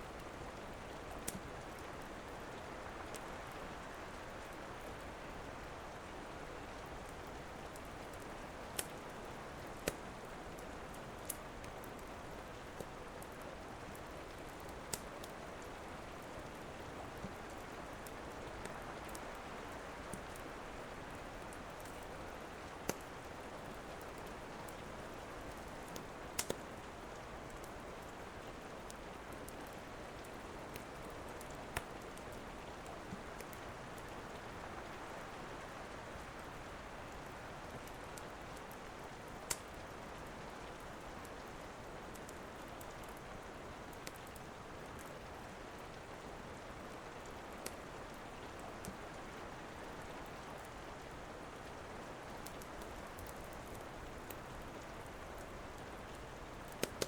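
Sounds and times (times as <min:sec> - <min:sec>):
steady rain: 0:00.0 - 0:57.0
wood fire popping: 0:14.0 - 0:15.4, 0:22.8 - 0:23.2, 0:25.8 - 0:26.7, 0:39.4 - 0:39.8, 0:55.0 - 0:57.0.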